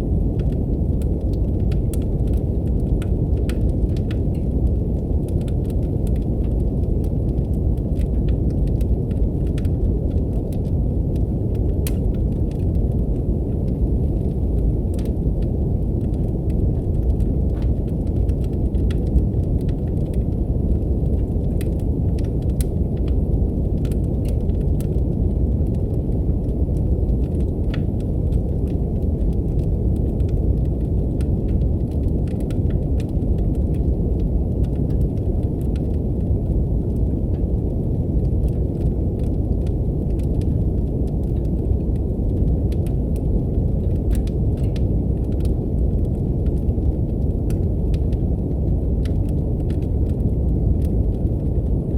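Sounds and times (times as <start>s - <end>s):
deep brown noise hiss: 0.0s - 51.9s
faint wood fire crackles: 0.0s - 51.9s.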